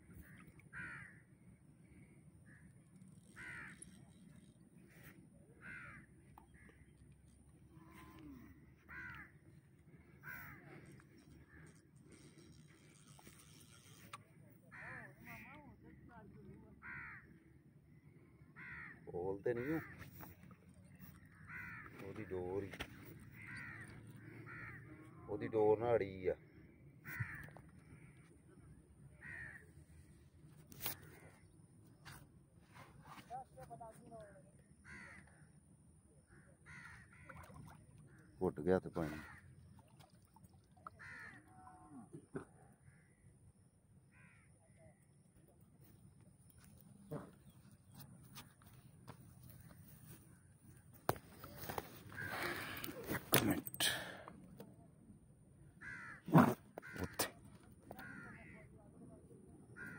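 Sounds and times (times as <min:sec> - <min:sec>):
bird cawing: 0:00.1 - 0:07.0, 0:07.9 - 0:13.9, 0:16.8 - 0:17.4, 0:18.5 - 0:25.3, 0:26.5 - 0:28.4, 0:29.2 - 0:29.7, 0:34.8 - 0:35.5, 0:36.3 - 0:38.4, 0:39.0 - 0:39.5, 0:40.8 - 0:43.3, 0:44.1 - 0:44.5, 0:51.6 - 0:53.1, 0:55.7 - 0:58.6.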